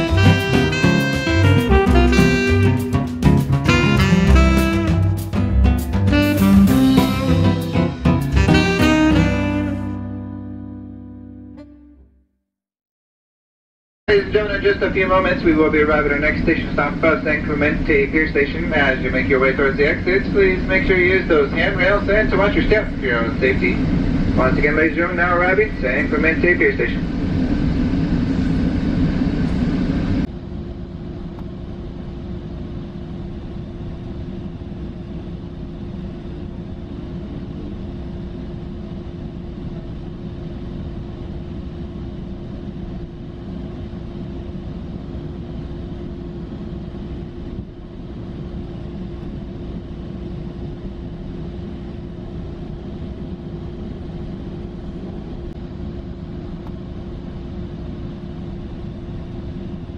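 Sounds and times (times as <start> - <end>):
train interior rumble: 0.0 - 9.9.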